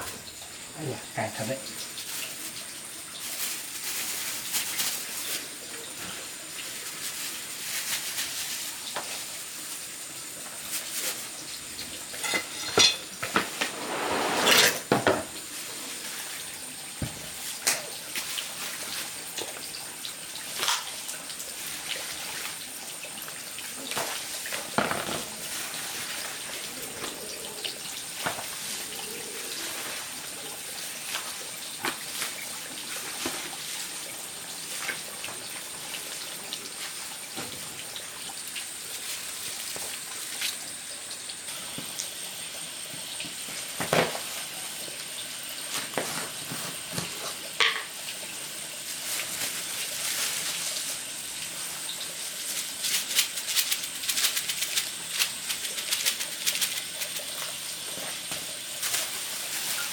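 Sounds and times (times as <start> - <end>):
water running and splashing: 0.0 - 59.9
dishes and utensils clinking: 12.1 - 15.4, 47.6 - 48.0.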